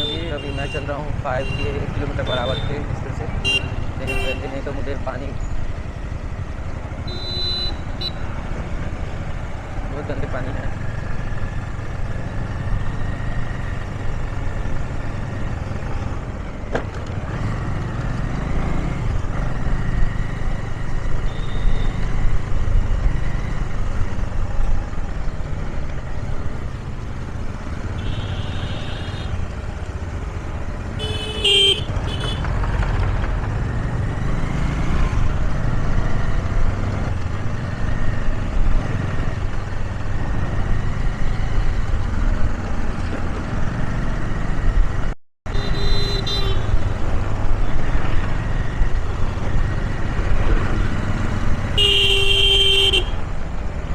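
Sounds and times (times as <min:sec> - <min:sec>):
motorcycle engine rumble: 0:00.0 - 0:53.9
vehicle horn honking: 0:03.4 - 0:04.5, 0:07.1 - 0:08.2, 0:28.0 - 0:29.4, 0:31.0 - 0:32.4, 0:45.5 - 0:46.8, 0:51.7 - 0:53.2.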